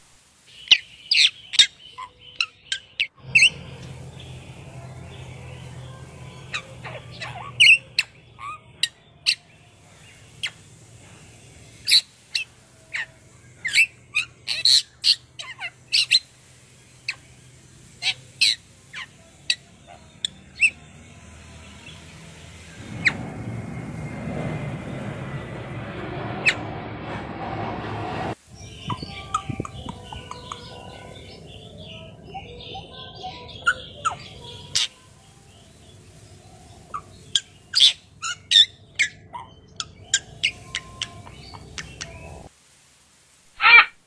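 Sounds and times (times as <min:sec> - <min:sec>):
steady rushing noise: 0:03.2 - 0:08.4, 0:09.5 - 0:19.5, 0:20.4 - 0:32.3, 0:40.0 - 0:43.5
bird chirps and squawks: 0:06.4 - 0:09.5, 0:28.6 - 0:31.4.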